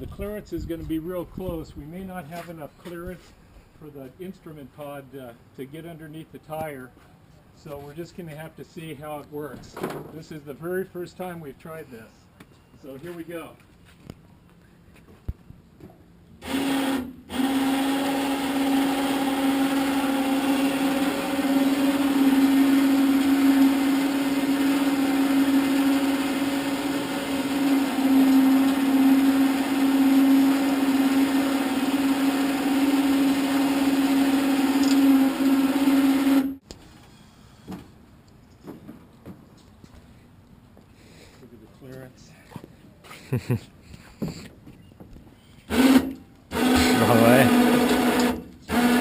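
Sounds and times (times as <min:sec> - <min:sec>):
electric winch motor hum: 0:16.4 - 0:36.6, 0:45.7 - 0:49.0.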